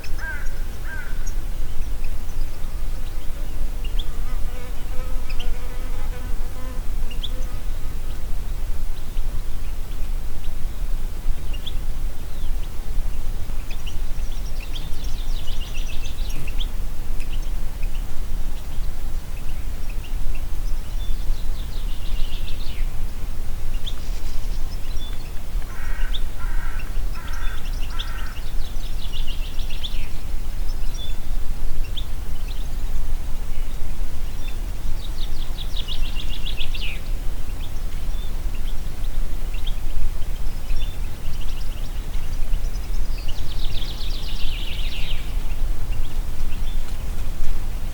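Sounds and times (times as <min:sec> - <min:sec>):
low repeated bird call: 0:00.0 - 0:01.5, 0:24.8 - 0:30.0
wind rumble on microphone: 0:00.0 - 0:47.9
wind through trees: 0:00.0 - 0:47.9
songbird trilling: 0:25.0 - 0:29.2.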